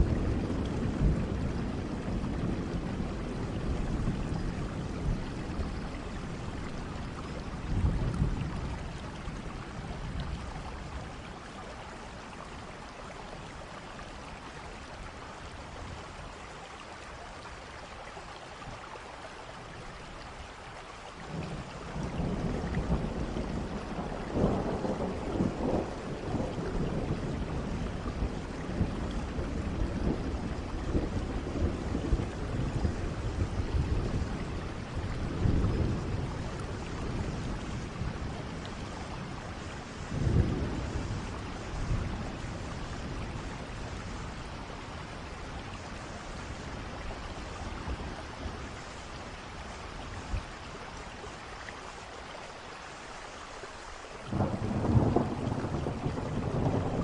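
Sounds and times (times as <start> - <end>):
rolling thunder: 0.0 - 11.3, 21.3 - 50.6, 54.3 - 57.0
steady rain: 0.0 - 57.0.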